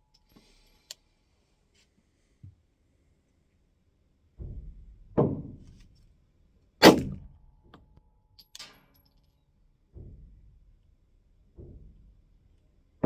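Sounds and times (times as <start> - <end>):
pistol shots: 6.8 - 7.2.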